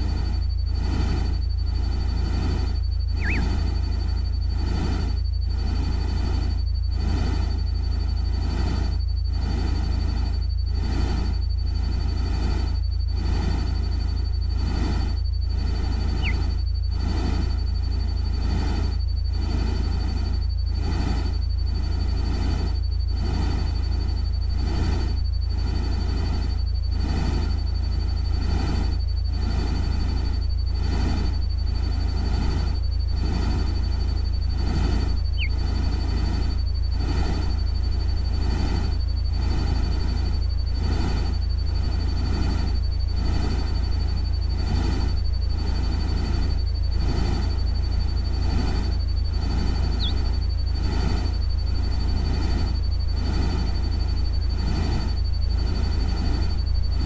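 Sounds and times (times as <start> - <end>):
thin steady high tone: 0.0 - 57.0
thin high tone: 3.2 - 3.7, 16.2 - 16.6, 35.3 - 35.7.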